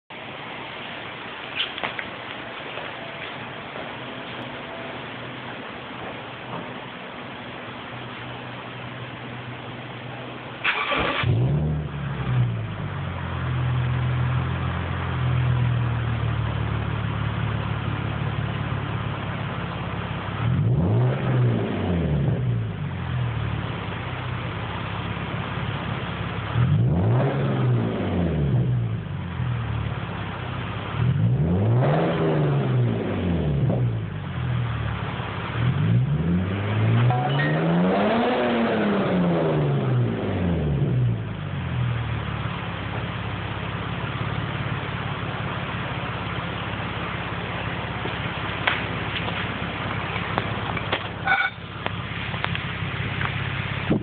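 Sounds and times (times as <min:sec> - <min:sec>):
car engine revving: 0:10.6 - 0:18.9, 0:19.9 - 0:24.0, 0:26.3 - 0:29.7, 0:30.8 - 0:54.0.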